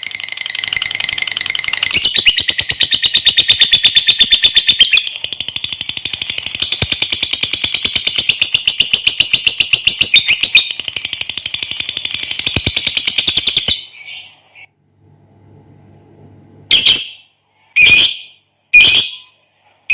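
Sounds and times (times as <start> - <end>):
lovebird chattering: 0.0 - 14.4.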